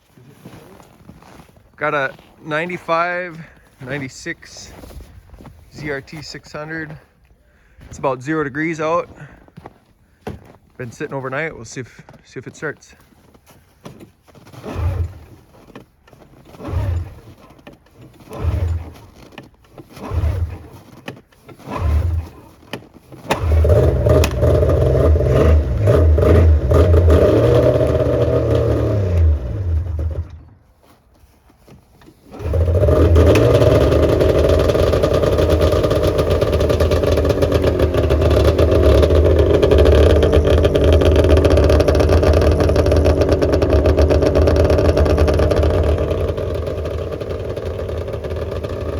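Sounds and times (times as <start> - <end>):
two-stroke engine cranking and starting: 13.2 - 48.9.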